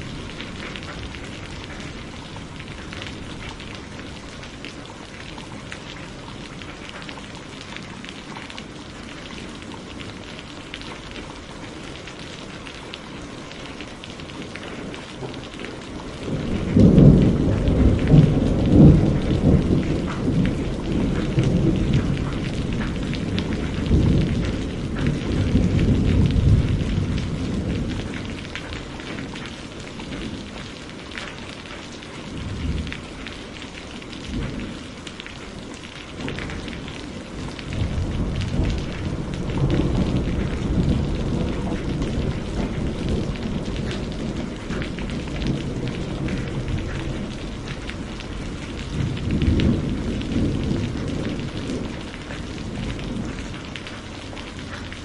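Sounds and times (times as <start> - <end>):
steady rain: 0.0 - 55.0
thunder rolling: 16.1 - 28.4, 36.2 - 53.5.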